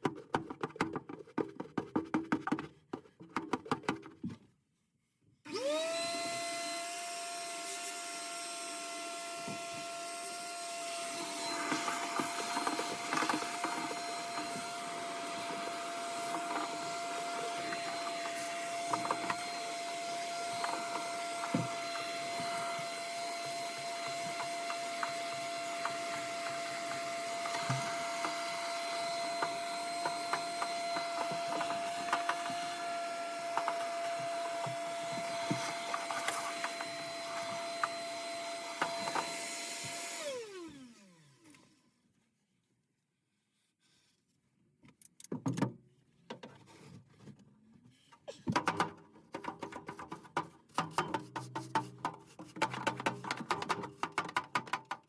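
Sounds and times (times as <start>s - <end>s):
electric motor whining: 5.5s - 41.3s
scraping and knocking: 11.4s - 38.0s.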